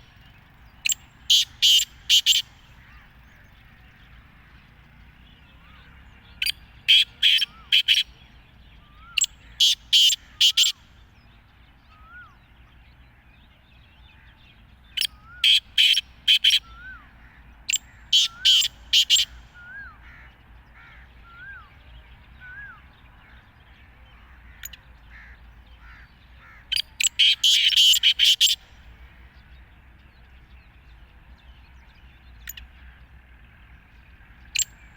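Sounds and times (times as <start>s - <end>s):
harsh grating bird calls: 0.0s - 8.1s, 8.9s - 10.8s, 15.0s - 21.6s, 24.1s - 28.9s.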